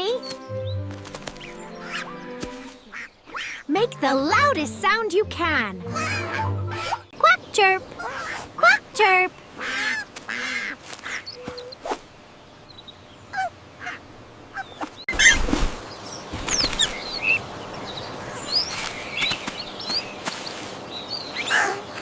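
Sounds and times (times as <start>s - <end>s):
cartoon bird honking and quacking: 5.8s - 7.1s, 8.0s - 11.8s.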